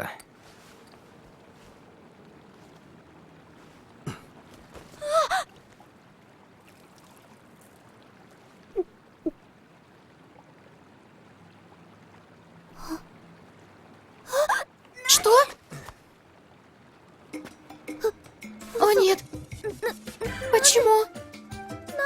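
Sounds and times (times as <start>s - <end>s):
high-pitched gasp-like cry: 5.0s - 5.5s, 12.8s - 13.0s, 14.3s - 15.6s, 18.8s - 21.1s.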